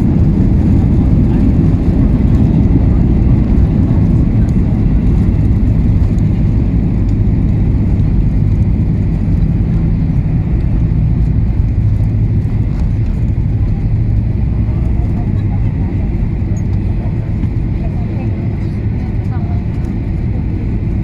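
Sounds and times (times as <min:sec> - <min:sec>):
airliner cabin engine rumble: 0:00.0 - 0:21.0.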